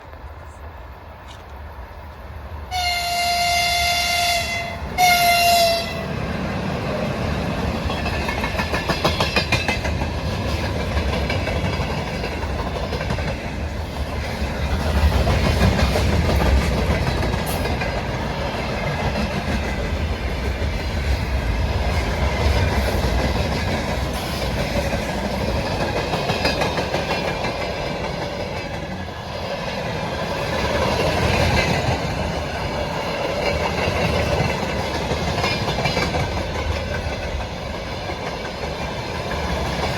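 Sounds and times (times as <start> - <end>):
freight train wagons rumbling: 0.0 - 39.9
locomotive horn blasts: 2.7 - 6.1
wheels clacking over rail joints: 4.4 - 39.9.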